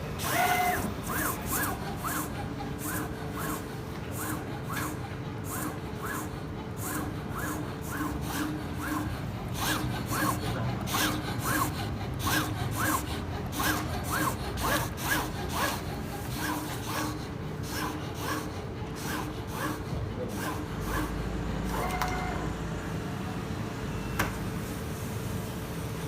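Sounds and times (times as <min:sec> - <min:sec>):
cutting plotter motor whines: 0:00.0 - 0:24.8
blade carriage scratchy rasp: 0:04.2 - 0:21.1.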